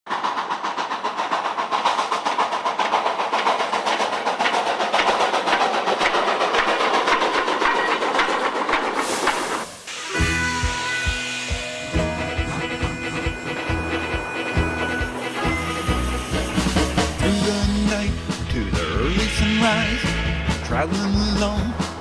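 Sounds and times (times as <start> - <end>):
train clickety-clack on rails: 0.1 - 22.0
hiss: 8.8 - 18.4
music: 10.0 - 22.0.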